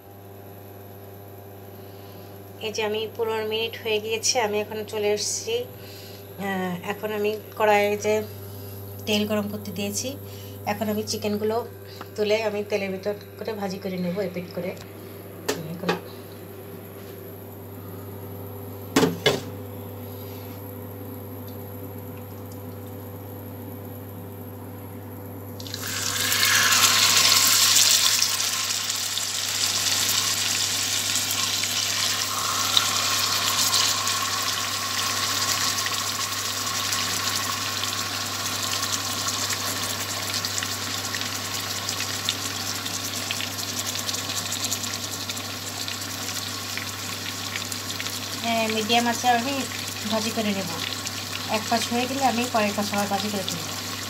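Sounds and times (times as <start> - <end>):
chicken sizzling in hot oil: 25.6 - 54.0.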